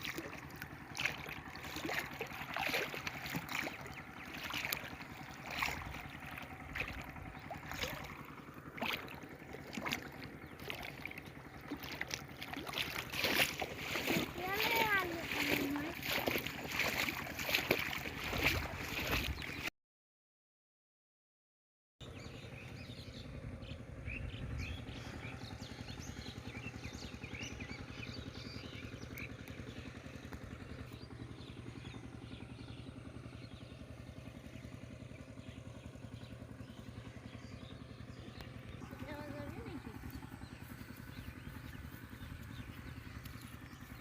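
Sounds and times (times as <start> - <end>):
low engine hum: 0.0 - 19.7, 22.0 - 44.0.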